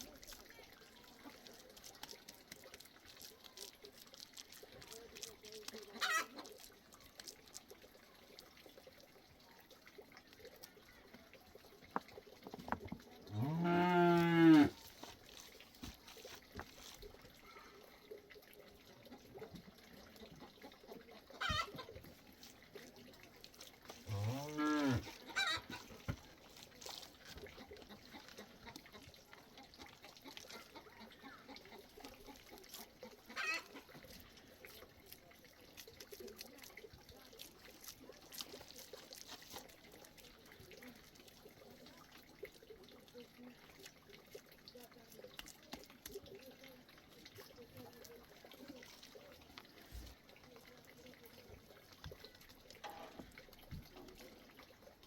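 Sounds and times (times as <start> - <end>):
cow mooing: 13.3 - 14.8, 24.1 - 25.1.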